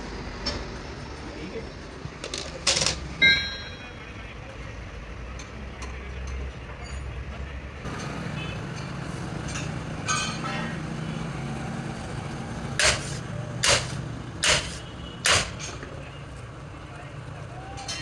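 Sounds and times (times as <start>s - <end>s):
hammer blows on metal: 12.8s - 15.8s.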